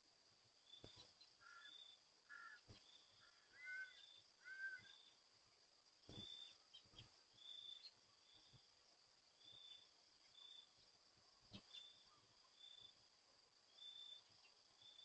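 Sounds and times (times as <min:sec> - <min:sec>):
insects humming: 0:00.0 - 0:15.0
insect high chirps: 0:00.6 - 0:05.3, 0:06.0 - 0:13.1
bird two-tone calls: 0:03.5 - 0:05.0.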